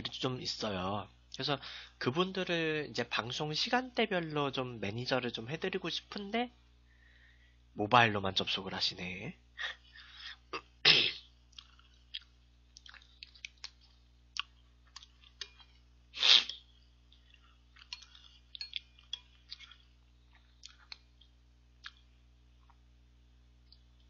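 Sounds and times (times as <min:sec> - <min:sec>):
chewing crunchy cereal: 0:11.5 - 0:22.8.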